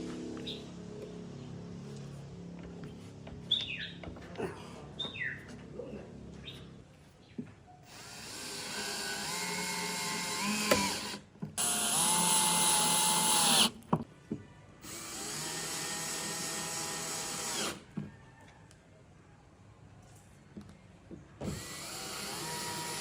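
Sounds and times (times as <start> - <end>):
power drill running: 7.9 - 13.7, 14.8 - 17.8, 21.5 - 23.0.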